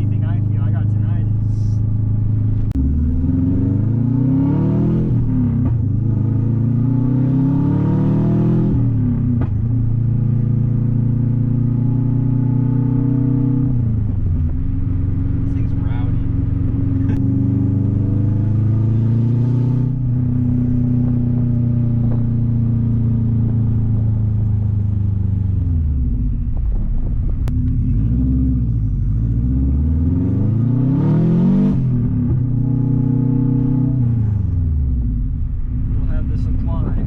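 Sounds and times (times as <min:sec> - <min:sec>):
loud raspy car exhaust: 0:00.0 - 0:37.0.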